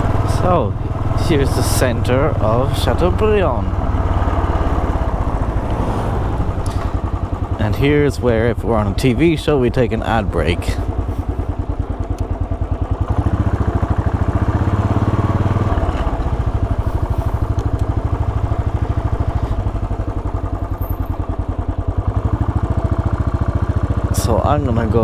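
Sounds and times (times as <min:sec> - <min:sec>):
motorcycle engine running at low revs: 0:00.0 - 0:25.0.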